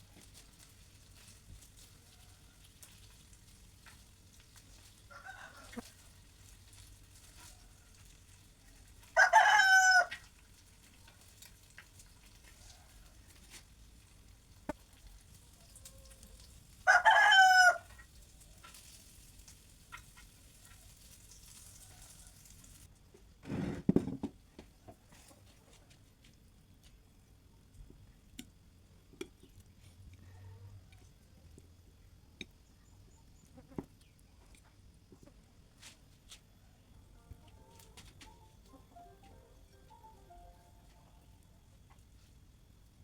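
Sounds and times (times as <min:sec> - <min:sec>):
rooster crowing: 0:05.1 - 0:05.9, 0:09.2 - 0:10.2, 0:15.8 - 0:17.9.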